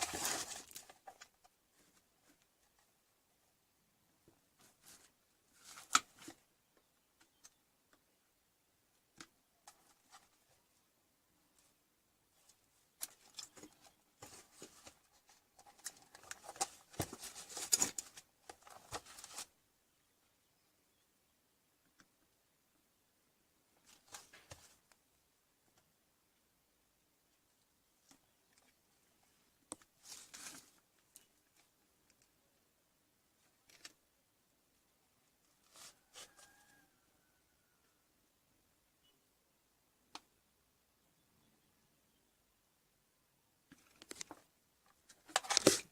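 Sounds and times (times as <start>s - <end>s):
faint clicks and rustles: 8.9s - 19.6s, 27.3s - 32.4s, 43.6s - 45.9s.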